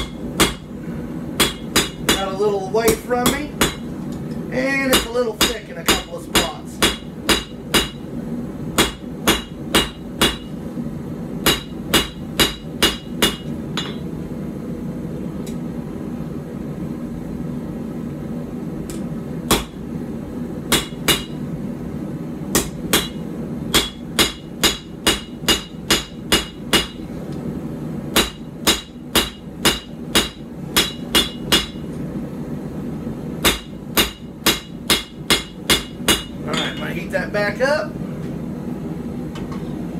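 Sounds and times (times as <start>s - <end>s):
hammer striking steel on anvil: 0.0s - 0.7s, 1.4s - 3.9s, 4.9s - 8.1s, 8.8s - 10.6s, 11.4s - 14.1s, 19.5s - 19.8s, 20.7s - 21.4s, 22.5s - 27.0s, 28.1s - 31.9s, 33.4s - 37.0s.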